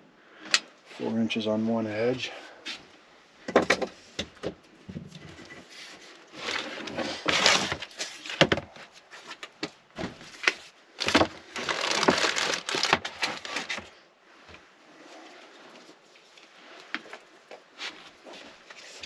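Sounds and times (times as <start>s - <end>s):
sound deadening sheet crinkling: 10.2s - 13.8s.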